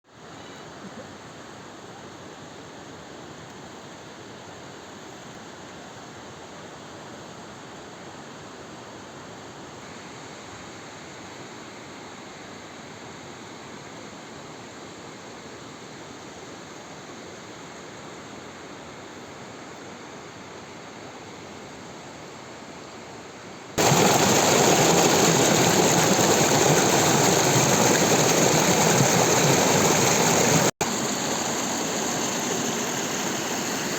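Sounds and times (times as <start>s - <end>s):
waterfall roaring: 23.8s - 33.9s.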